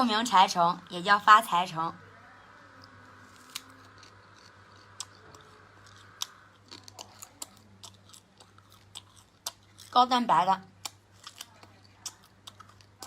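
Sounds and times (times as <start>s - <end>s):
crisp crunching while chewing: 2.7s - 13.0s.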